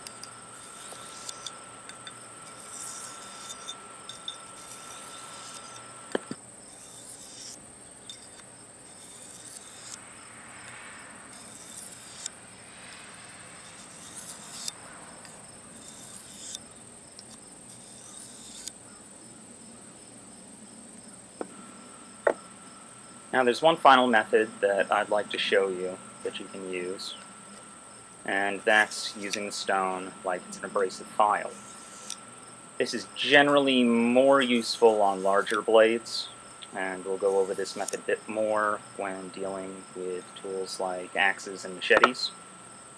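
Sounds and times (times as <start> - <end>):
crickets chirping: 0.0 - 42.9
knife scraping on sharpening stone: 0.2 - 5.9, 6.7 - 10.0, 11.3 - 12.3, 13.6 - 16.6, 17.7 - 18.8, 31.5 - 32.2.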